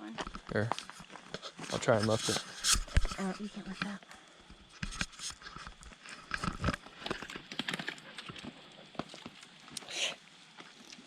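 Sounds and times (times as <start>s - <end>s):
stones clacking in stream bed: 4.8s - 9.8s.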